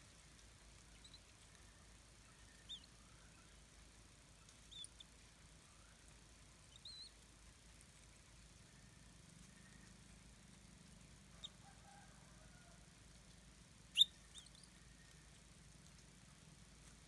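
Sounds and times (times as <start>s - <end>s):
quiet background hiss: 0.0s - 17.0s
bird chirping: 0.9s - 3.6s, 4.4s - 5.1s, 6.6s - 7.2s, 11.4s - 11.6s, 13.9s - 15.2s.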